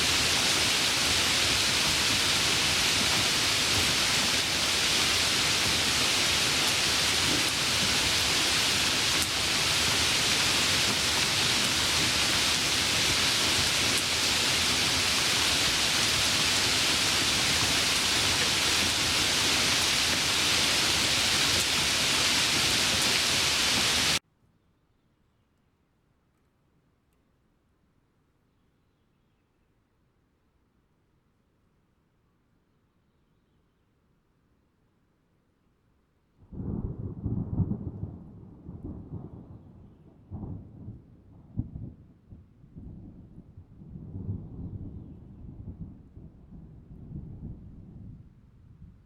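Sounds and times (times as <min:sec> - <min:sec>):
heavy rain hissing: 0:00.0 - 0:24.2.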